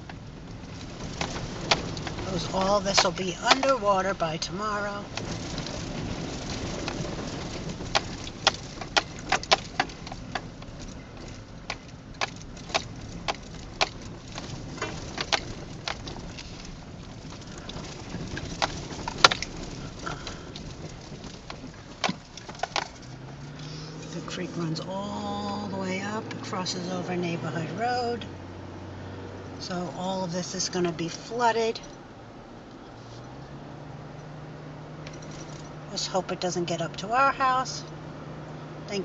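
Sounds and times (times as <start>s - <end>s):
sharp clicks and ticks: 0.0s - 24.8s
car road and engine noise: 0.0s - 39.0s.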